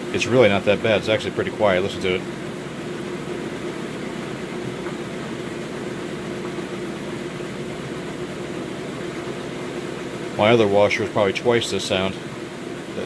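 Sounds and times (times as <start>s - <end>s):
washing machine spin cycle hum: 0.0s - 13.0s.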